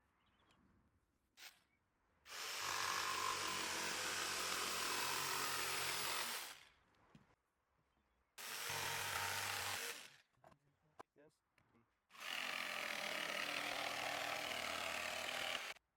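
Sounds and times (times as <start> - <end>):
electric jigsaw cutting wood: 2.3 - 6.6, 8.4 - 10.2, 12.2 - 15.8.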